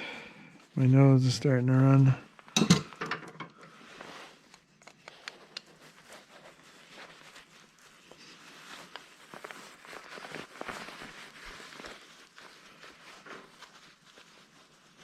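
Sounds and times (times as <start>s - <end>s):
rustling: 3.6s - 15.0s.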